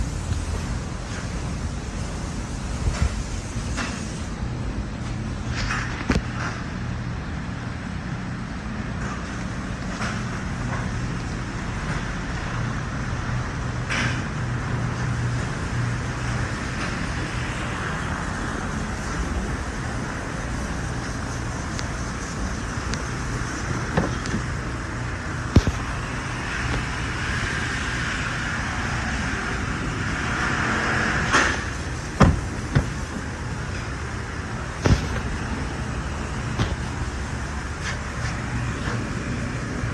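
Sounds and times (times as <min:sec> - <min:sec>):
engine idling: 0:09.2 - 0:39.9.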